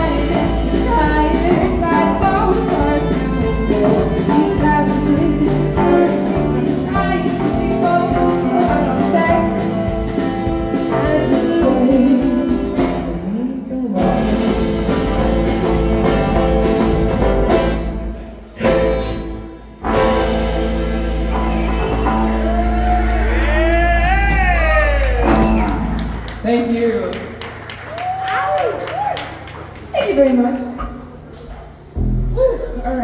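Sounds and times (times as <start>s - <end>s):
person singing: 0.0s - 9.6s, 10.8s - 15.4s
live band playing: 0.0s - 33.0s.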